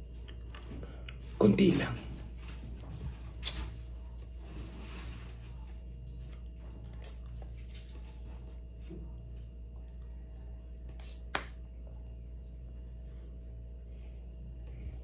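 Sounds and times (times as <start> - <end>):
steady low hum: 0.0 - 15.0
soft chewing clicks: 9.6 - 10.9.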